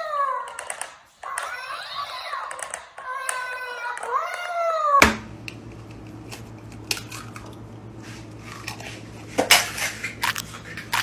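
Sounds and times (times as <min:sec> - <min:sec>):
steady low hum: 0:05.0 - 0:11.0.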